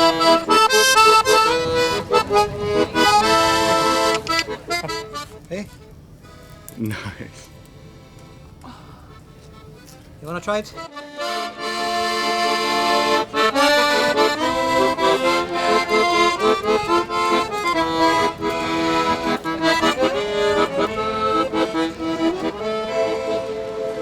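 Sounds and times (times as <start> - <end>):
accordion playing lively tune: 0.0 - 24.0.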